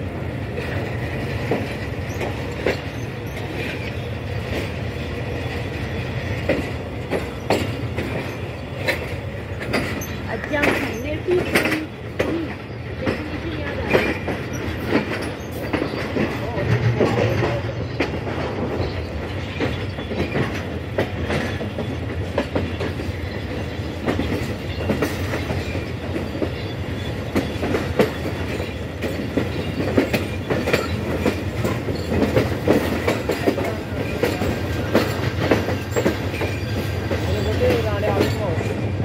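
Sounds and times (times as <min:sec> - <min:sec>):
train rumbling on track: 0:00.0 - 0:39.0
wheels clicking over rail joints: 0:00.0 - 0:39.0.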